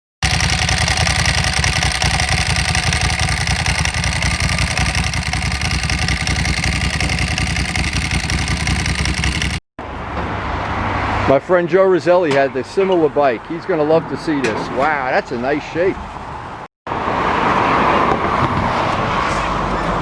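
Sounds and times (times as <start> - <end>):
motorcycle engine running: 0.2 - 9.6.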